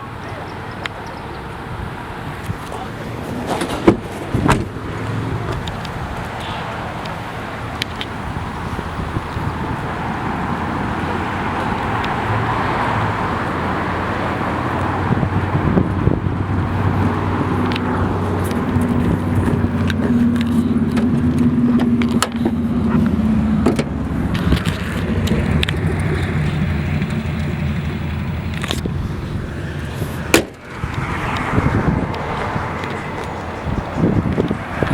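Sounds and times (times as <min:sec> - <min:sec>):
car engine running: 0:07.3 - 0:34.9.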